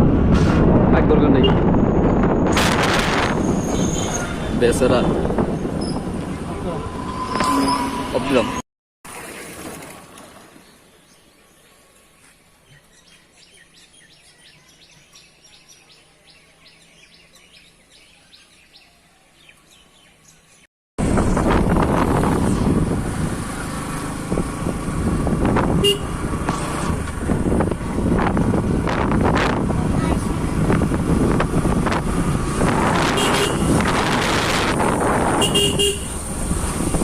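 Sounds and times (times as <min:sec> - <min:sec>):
wind noise on microphone: 0:00.0 - 0:08.2, 0:21.0 - 0:37.0
vehicle riding noise: 0:00.0 - 0:08.6, 0:19.3 - 0:37.0.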